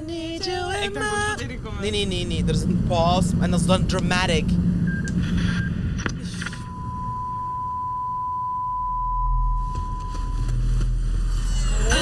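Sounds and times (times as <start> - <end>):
low rumble: 0.0 - 12.0
steady high beep tone: 6.6 - 10.6.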